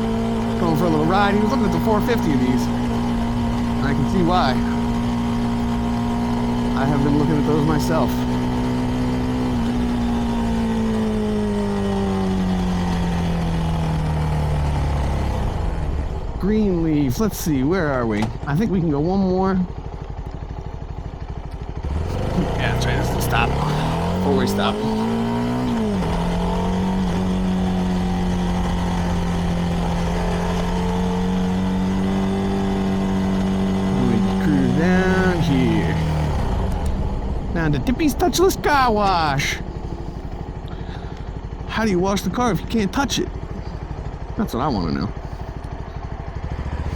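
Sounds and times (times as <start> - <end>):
motorcycle engine slowing: 0.0 - 46.9.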